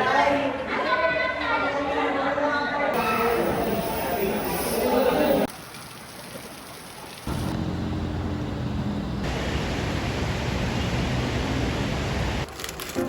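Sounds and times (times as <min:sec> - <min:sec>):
heavy rain rushing: 0:03.0 - 0:05.7, 0:06.6 - 0:12.5
low hum: 0:07.3 - 0:12.5.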